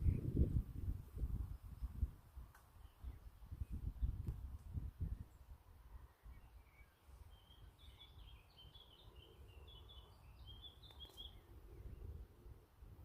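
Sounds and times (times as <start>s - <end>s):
low wind rumble: 0.0s - 13.0s
songbird twittering: 2.7s - 4.2s, 5.0s - 12.2s.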